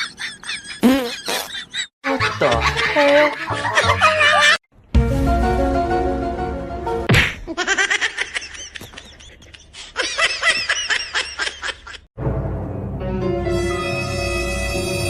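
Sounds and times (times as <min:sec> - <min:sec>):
background music: 0:02.0 - 0:07.1, 0:12.2 - 0:15.0.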